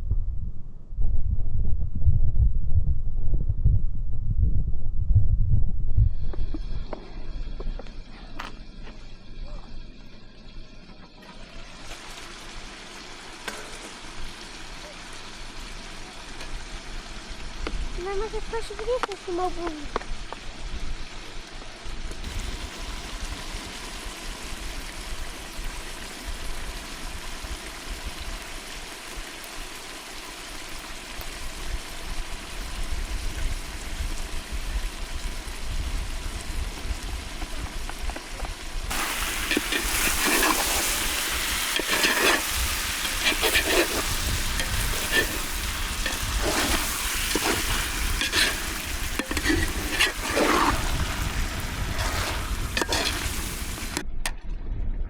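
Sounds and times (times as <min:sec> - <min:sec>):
food sizzling over fire: 0:06.1 - 0:54.1
stirring clicks and knocks: 0:38.9 - 0:54.0.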